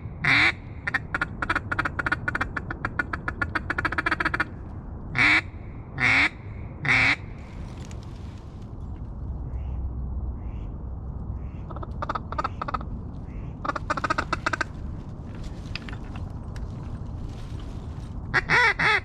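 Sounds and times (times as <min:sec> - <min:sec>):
duck call quacks: 0:00.2 - 0:04.5, 0:18.3 - 0:19.0.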